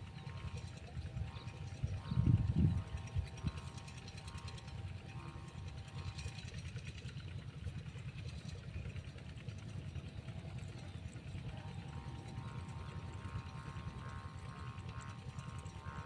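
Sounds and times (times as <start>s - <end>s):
faint steady hum: 0.0s - 16.0s
wind buffeting microphone: 1.0s - 4.9s.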